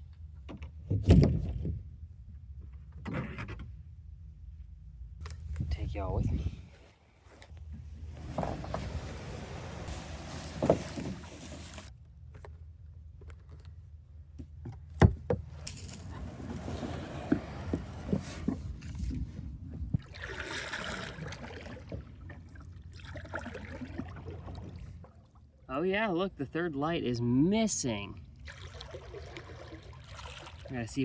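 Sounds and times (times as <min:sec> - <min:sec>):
paddle strokes with splashing: 0:08.1 - 0:11.9, 0:15.7 - 0:19.2, 0:20.0 - 0:25.5, 0:28.4 - 0:30.9.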